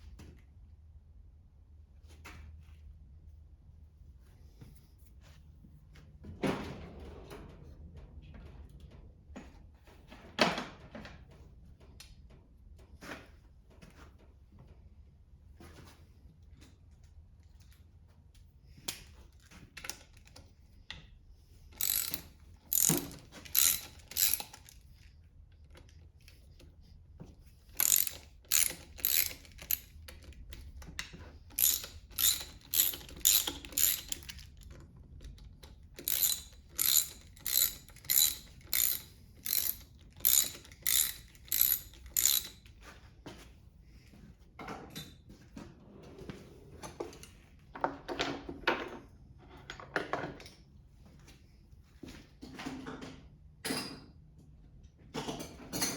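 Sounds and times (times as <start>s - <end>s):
ratchet wrench clicking: 21.8s - 24.8s, 27.8s - 30.7s, 31.5s - 34.7s, 36.0s - 42.6s.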